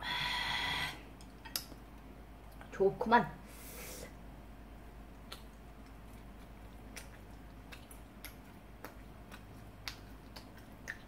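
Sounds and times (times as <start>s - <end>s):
person chewing food: 4.9s - 11.0s.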